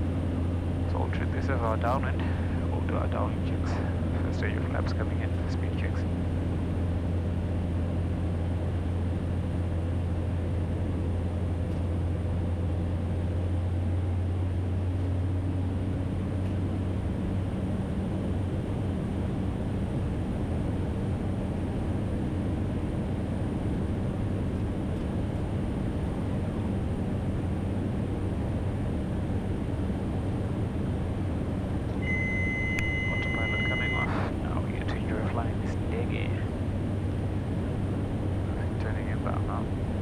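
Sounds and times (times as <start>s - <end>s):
turboprop engine drone: 0.0s - 40.0s
air noise: 32.0s - 39.4s.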